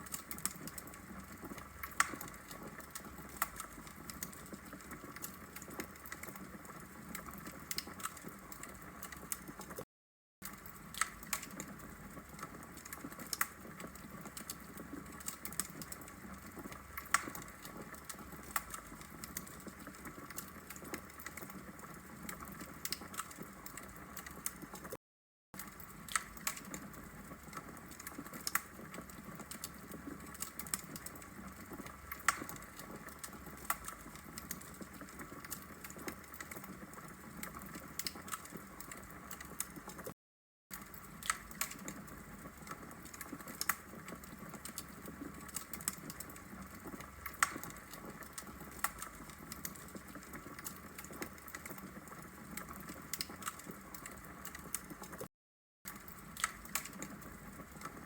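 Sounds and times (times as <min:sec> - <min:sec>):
wood fire crackling and popping: 0:00.0 - 0:09.8, 0:10.4 - 0:25.0, 0:25.6 - 0:55.3, 0:55.9 - 0:58.0.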